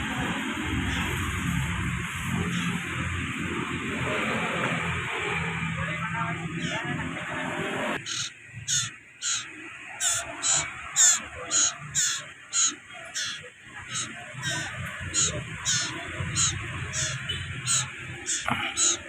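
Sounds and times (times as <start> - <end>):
bird giving short high calls: 8.0 - 19.0.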